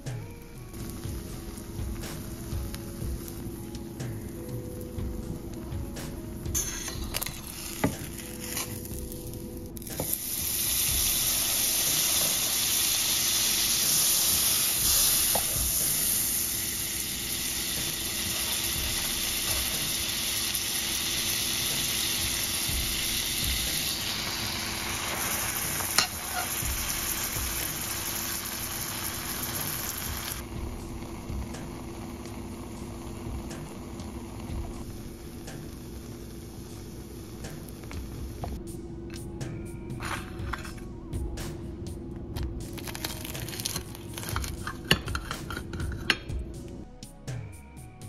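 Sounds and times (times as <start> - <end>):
bread frying in a skillet: 6.6 - 38.4, 42.7 - 46.1.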